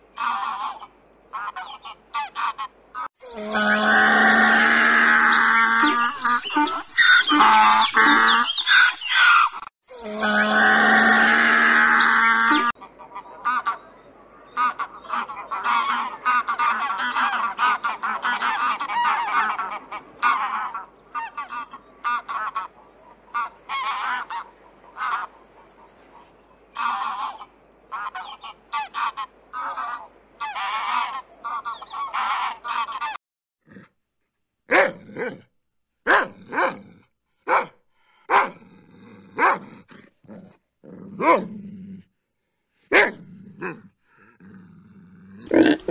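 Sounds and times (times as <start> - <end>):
geese honking: 0.2 - 13.9, 14.5 - 33.2.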